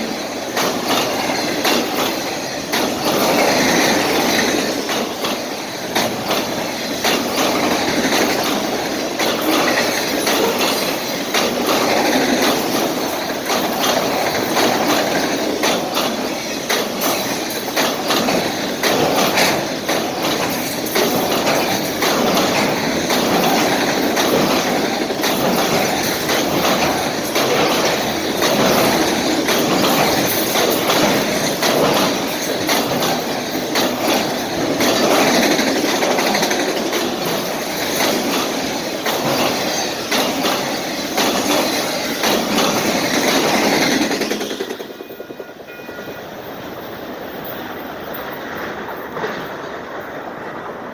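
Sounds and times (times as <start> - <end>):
freight train cars rolling: 0.0 - 50.9
wheels clicking over rail joints: 0.0 - 50.9.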